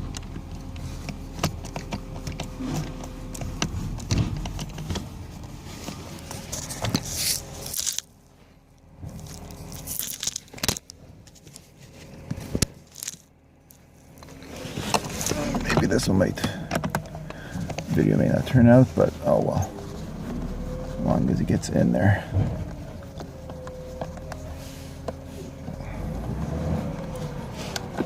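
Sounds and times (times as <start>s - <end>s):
clicks and knocks of car part fitting: 16.4s - 17.9s.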